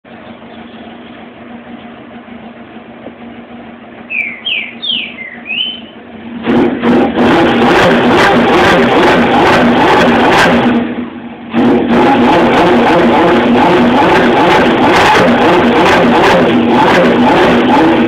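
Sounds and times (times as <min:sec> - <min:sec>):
motorcycle engine idling and revving: 0:00.0 - 0:18.0
short rising chirps: 0:04.1 - 0:06.0.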